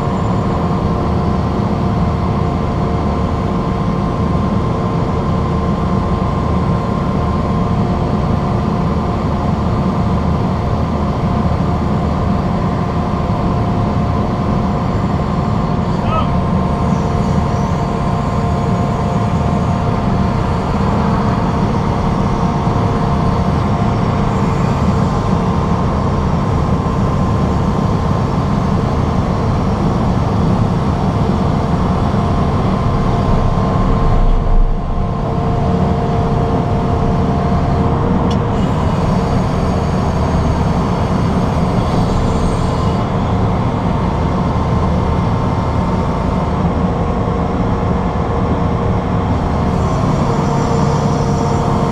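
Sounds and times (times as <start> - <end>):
heavy machinery engine drone: 0.0 - 51.9
faint whine: 14.7 - 46.4, 49.1 - 51.9.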